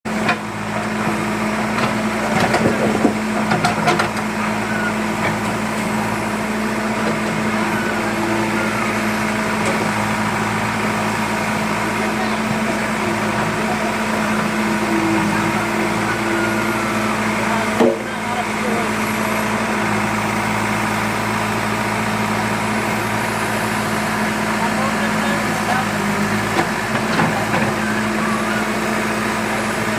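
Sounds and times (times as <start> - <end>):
excavator diesel engine running: 0.0 - 29.9
machine knocks and clanks: 1.8 - 4.2.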